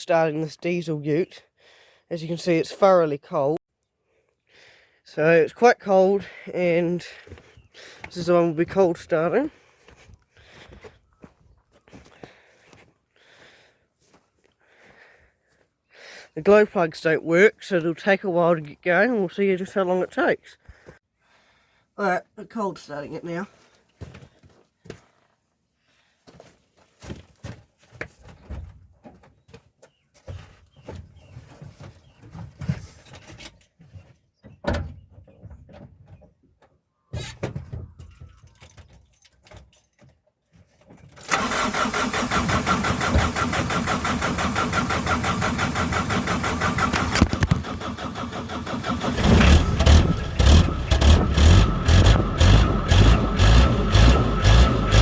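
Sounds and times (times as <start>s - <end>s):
diesel engine running: 41.3s - 55.0s.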